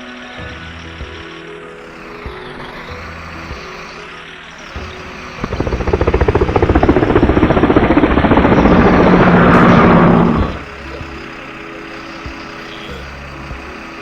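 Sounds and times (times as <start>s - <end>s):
soft background music: 0.0s - 14.0s
engine chugging rapidly: 4.7s - 11.4s.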